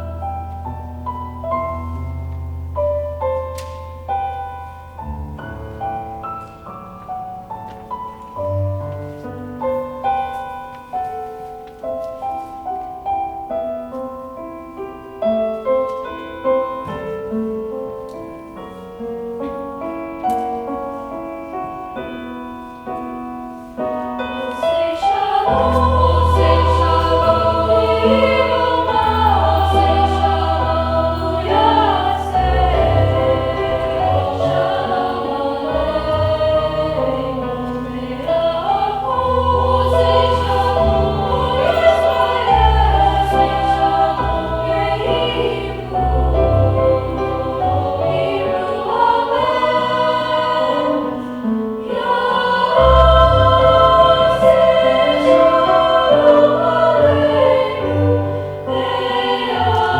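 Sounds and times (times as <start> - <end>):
piano accompaniment: 0.0 - 59.9
choir singing: 23.8 - 59.9.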